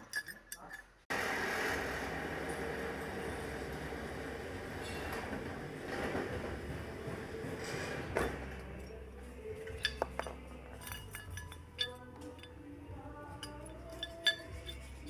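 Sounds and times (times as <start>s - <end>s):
metal objects clinking: 0.0s - 1.0s, 7.6s - 15.0s.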